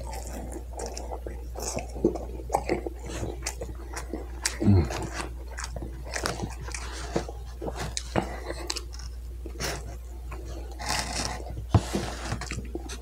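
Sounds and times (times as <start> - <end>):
chewing fried food: 0.0 - 13.0
low vocal hum: 3.8 - 5.4.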